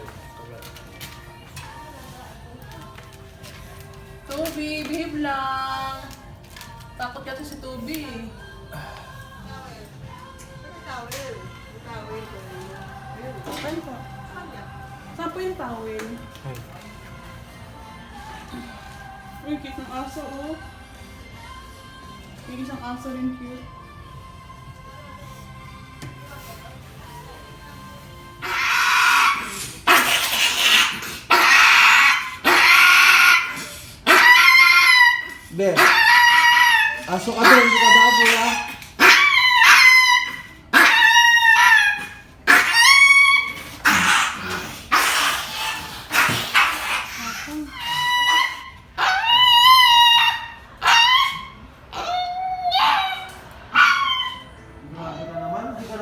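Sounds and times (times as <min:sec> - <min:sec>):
dog squealing: 0:28.4 - 0:55.9.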